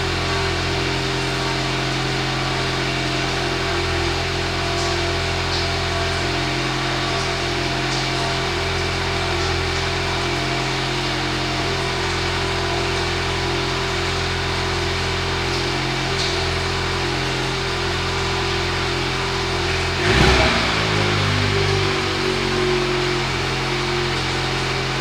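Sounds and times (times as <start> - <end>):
car engine idling: 14.0 - 25.0.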